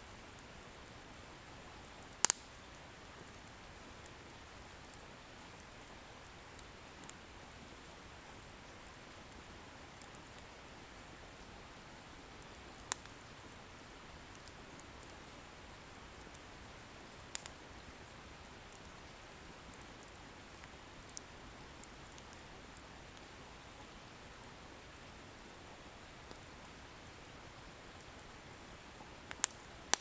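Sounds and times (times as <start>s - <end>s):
bonfire hissing and crackling: 0.0s - 30.0s
firewood popping: 2.2s - 2.6s, 17.3s - 17.6s, 29.3s - 30.0s.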